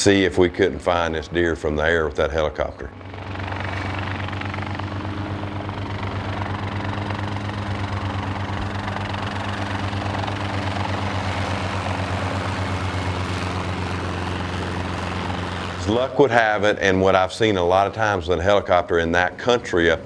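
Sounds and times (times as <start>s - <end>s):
helicopter engine drone: 0.0s - 20.0s
helicopter rotor chop: 0.0s - 20.0s.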